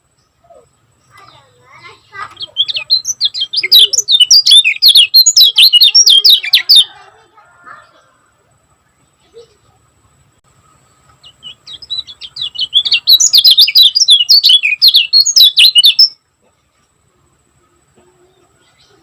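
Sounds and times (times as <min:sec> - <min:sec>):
bird chattering song: 0:00.0 - 0:07.0, 0:10.5 - 0:16.2.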